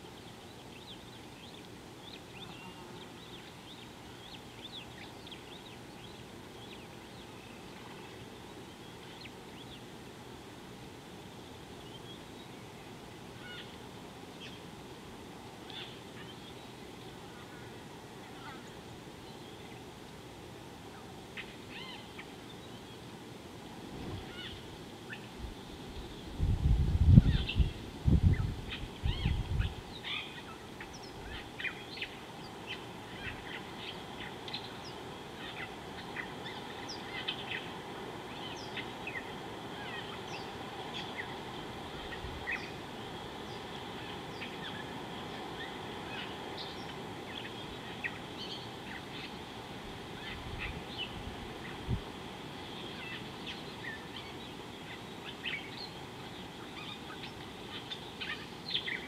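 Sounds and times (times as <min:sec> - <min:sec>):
birds chirping: 0:00.0 - 0:10.0, 0:27.2 - 0:59.0
outdoor background hiss: 0:00.0 - 0:59.0.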